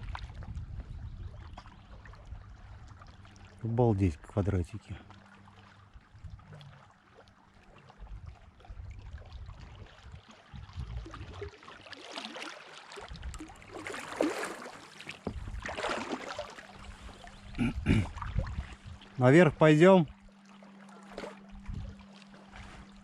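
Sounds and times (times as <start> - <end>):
low wind rumble: 0.0 - 3.2, 8.0 - 11.5, 15.3 - 15.8, 16.7 - 20.3
canoe paddle splashing in water: 9.2 - 19.2, 20.4 - 23.0.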